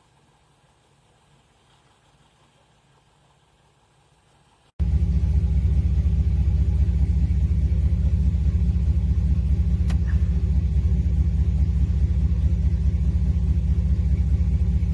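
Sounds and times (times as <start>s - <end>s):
vehicle engine running: 4.8s - 14.9s.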